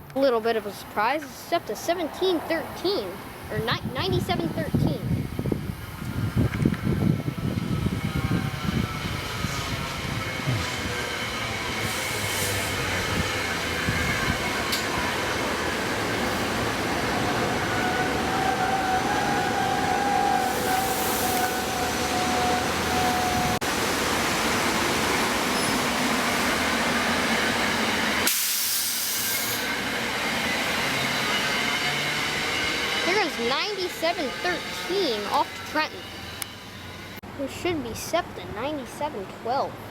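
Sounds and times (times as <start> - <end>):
train rumble and hiss: 0.0 - 39.9
hiss of air: 11.8 - 13.3, 20.4 - 21.6, 28.2 - 29.7.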